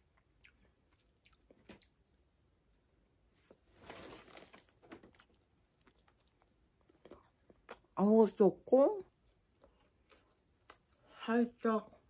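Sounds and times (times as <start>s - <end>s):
faint biting and chewing: 0.0s - 2.1s, 4.5s - 8.0s, 9.1s - 11.2s.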